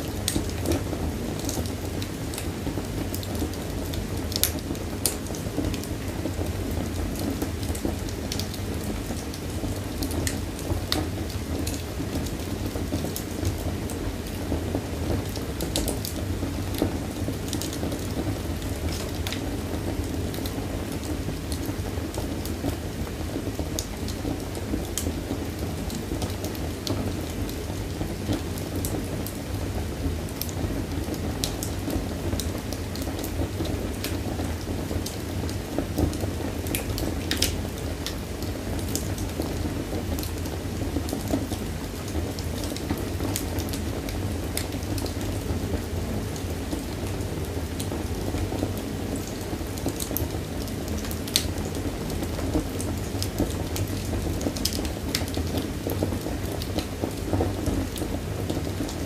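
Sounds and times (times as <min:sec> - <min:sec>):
fire crackles and pops: 0:00.0 - 0:59.0
low rumble of flames: 0:00.0 - 0:59.0.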